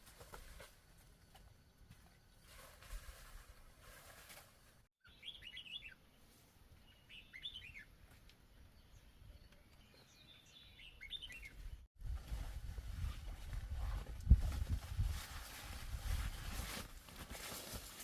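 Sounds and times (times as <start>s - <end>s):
small bird chirping: 5.0s - 6.1s, 6.8s - 8.0s, 8.6s - 11.8s.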